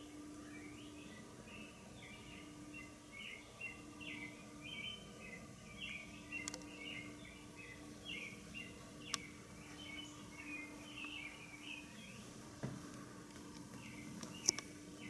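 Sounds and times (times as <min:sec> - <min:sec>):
bird chirping: 0:00.0 - 0:12.4, 0:13.6 - 0:15.0
low steady hum: 0:00.0 - 0:15.0
sharp clicks: 0:06.4 - 0:06.8, 0:09.1 - 0:09.3, 0:13.3 - 0:14.7.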